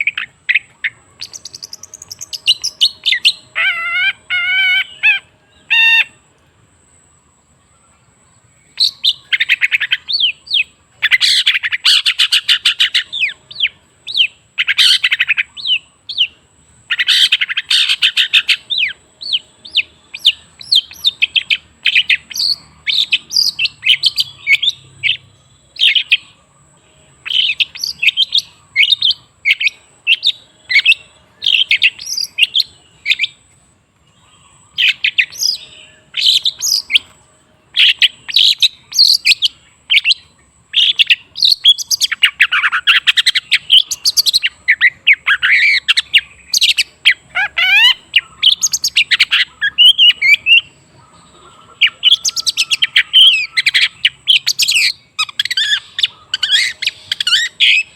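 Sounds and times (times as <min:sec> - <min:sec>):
bird chirping: 0:00.0 - 0:57.9.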